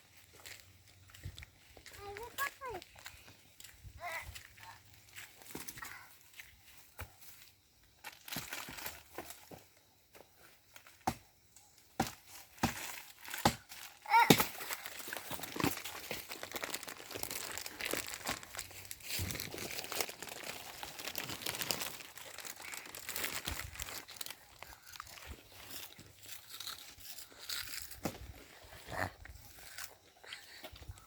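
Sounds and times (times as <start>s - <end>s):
sticks and leaves crunching: 12.0s - 30.6s.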